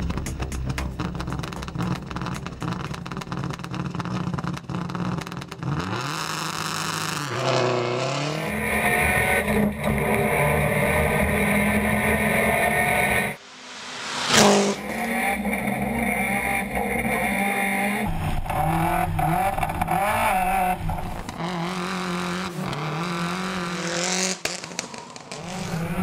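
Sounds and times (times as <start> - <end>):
tyres spinning in a burnout: 0.0 - 13.4, 14.5 - 26.0
car engine idling and revving: 0.0 - 26.0.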